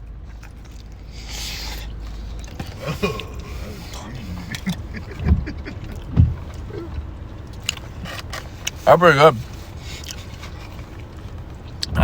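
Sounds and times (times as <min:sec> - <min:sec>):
people chewing pizza: 0:00.1 - 0:12.0
low thumps: 0:04.5 - 0:07.1.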